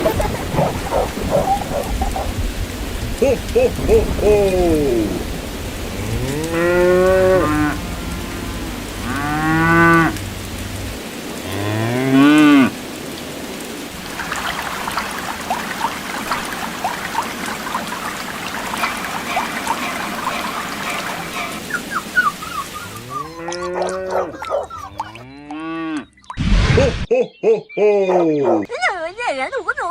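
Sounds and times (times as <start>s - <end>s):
cow mooing: 5.9s - 10.2s, 11.4s - 12.8s, 18.8s - 21.6s, 22.9s - 26.0s.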